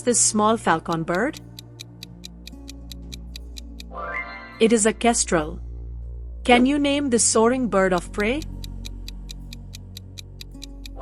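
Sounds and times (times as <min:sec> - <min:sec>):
fast clock ticking: 0:00.0 - 0:03.9, 0:07.9 - 0:11.0
background music: 0:00.0 - 0:11.0.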